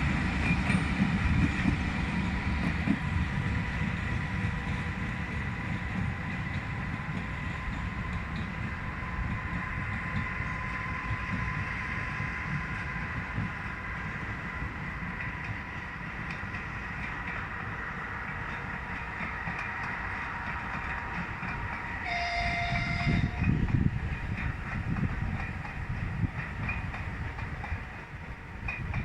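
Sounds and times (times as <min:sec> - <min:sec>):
diesel locomotive hum: 0:00.0 - 0:29.0
locomotive horn: 0:22.0 - 0:23.6.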